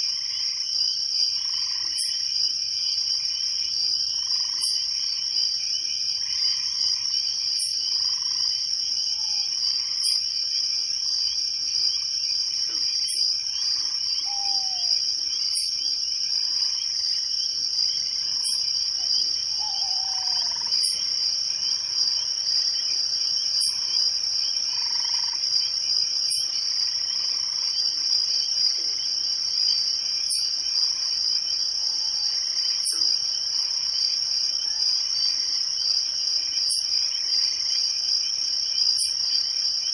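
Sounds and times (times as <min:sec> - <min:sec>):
frog calls: 0:00.0 - 0:02.3, 0:04.0 - 0:05.3, 0:06.2 - 0:10.6, 0:11.2 - 0:33.8, 0:36.5 - 0:37.9, 0:38.6 - 0:39.5
crickets trilling: 0:00.0 - 0:39.9.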